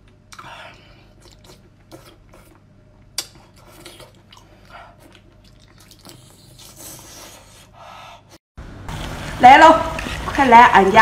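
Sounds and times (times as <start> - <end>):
person chewing octopus: 0.0 - 7.8.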